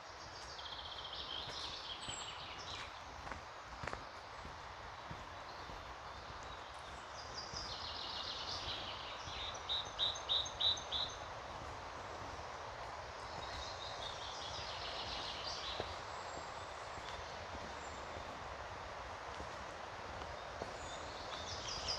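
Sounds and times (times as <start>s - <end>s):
songbird singing: 0.0s - 21.9s.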